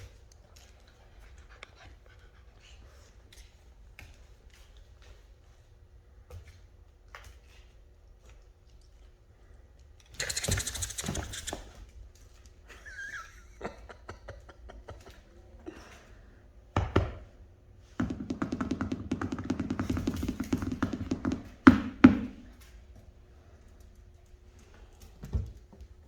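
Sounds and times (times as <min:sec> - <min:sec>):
fast steady tapping: 0:10.2 - 0:11.6
puppies clicking and knocking: 0:10.2 - 0:11.7, 0:18.0 - 0:22.7
puppies scuffling: 0:10.2 - 0:11.8, 0:19.3 - 0:21.6.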